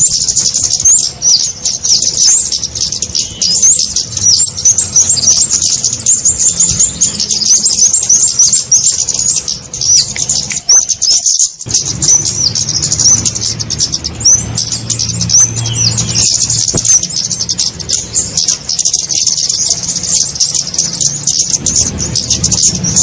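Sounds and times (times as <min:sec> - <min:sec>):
high-pitched bird chirps: 0:00.0 - 0:23.0.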